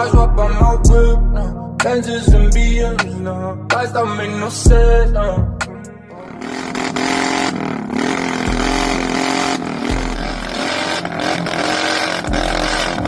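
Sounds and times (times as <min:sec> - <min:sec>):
motorcycle engine revving: 0:06.2 - 0:13.0.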